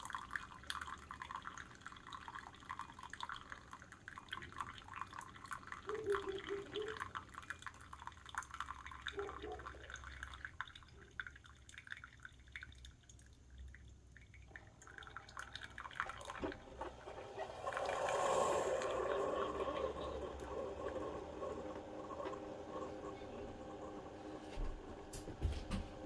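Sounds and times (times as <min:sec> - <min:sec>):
coffee dripping into a cup: 0:00.0 - 0:23.9
low machine hum: 0:14.4 - 0:26.0
coffee maker rushing: 0:14.5 - 0:26.0.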